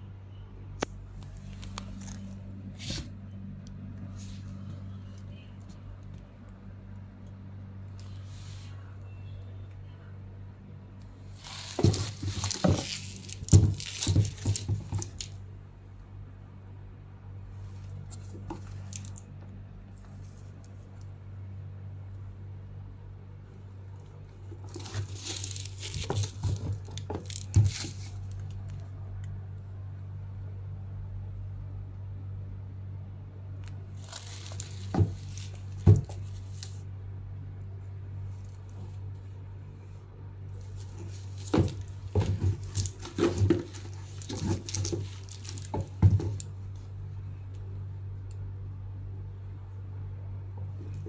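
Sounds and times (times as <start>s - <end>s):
steady low hum: 0.0s - 51.0s
bag rustling and soft knocks: 11.3s - 15.4s, 24.5s - 28.4s, 34.0s - 36.8s, 40.6s - 46.8s
packaging wrap crinkling: 11.4s - 15.3s, 24.6s - 28.8s, 33.9s - 36.8s, 40.6s - 46.5s.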